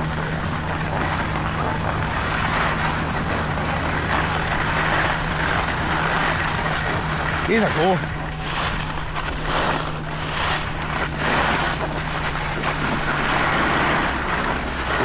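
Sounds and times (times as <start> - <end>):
low steady hum: 0.0 - 15.0
wind on microphone: 0.0 - 15.0
skis hissing on snow: 7.3 - 15.0.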